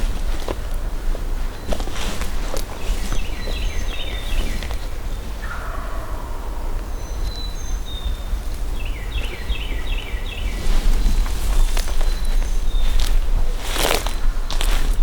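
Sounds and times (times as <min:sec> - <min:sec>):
songbirds singing: 0:00.0 - 0:15.0
distant turkey gobbling: 0:03.1 - 0:07.1.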